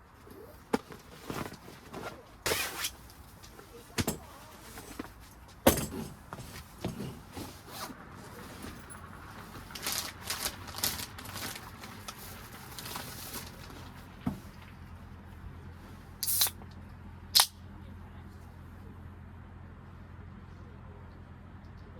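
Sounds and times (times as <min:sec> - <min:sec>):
objects being handled: 0:00.2 - 0:14.7.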